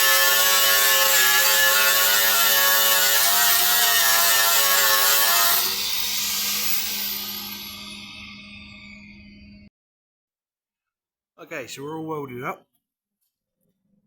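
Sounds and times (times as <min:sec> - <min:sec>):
angle grinder grinding metal: 0:00.0 - 0:09.6.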